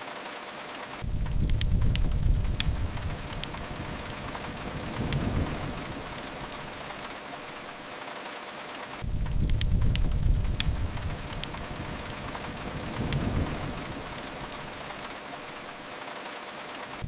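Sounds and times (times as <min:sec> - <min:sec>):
fireplace crackling: 0:00.0 - 0:17.0
rain pattering: 0:00.0 - 0:17.0
low rumble: 0:01.0 - 0:07.1, 0:09.0 - 0:15.1.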